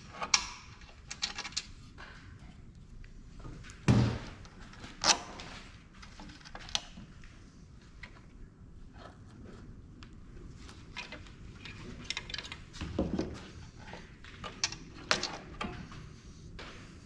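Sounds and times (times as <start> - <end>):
tools and parts clattering: 0.1 - 1.8, 10.7 - 15.9.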